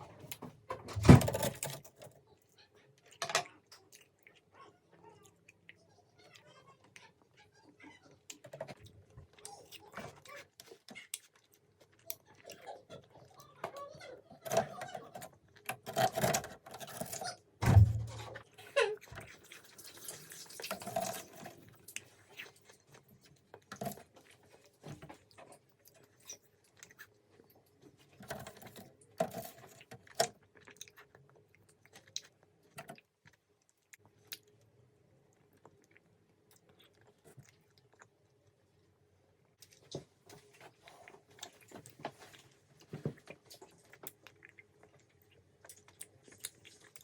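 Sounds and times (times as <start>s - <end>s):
chewing sticky candy: 1.5s - 47.0s
low thump: 17.6s - 18.3s.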